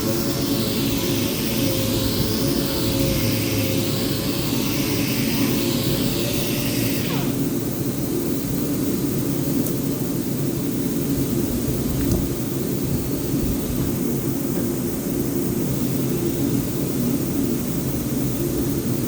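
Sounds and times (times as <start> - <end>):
power sander motor humming: 0.0 - 7.4
sanding hiss: 0.0 - 7.5.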